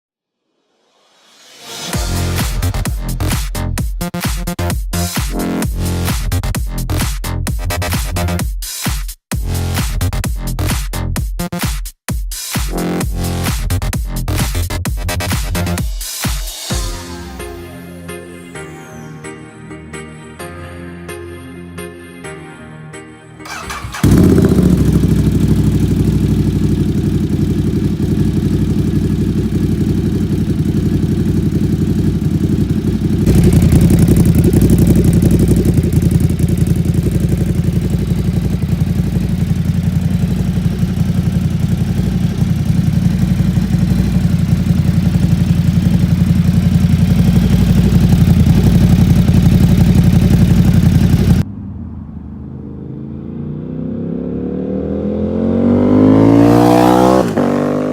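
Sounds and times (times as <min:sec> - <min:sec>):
engine rising in pitch: 0:23.4 - 0:57.9
motorcycle engine idling: 0:23.5 - 0:51.4, 0:56.1 - 0:57.9.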